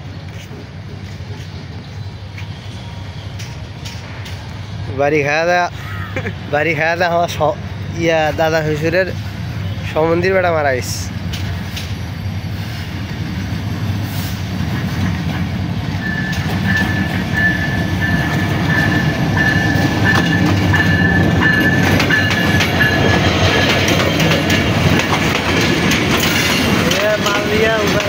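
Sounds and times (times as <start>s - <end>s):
diesel locomotive engine rumble: 0.0s - 28.0s
train wheels clattering over rail joints: 14.6s - 28.0s.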